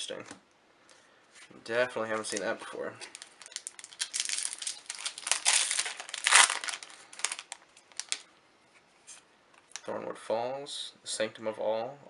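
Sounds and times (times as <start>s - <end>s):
foil wrapper crinkling: 2.2s - 8.2s.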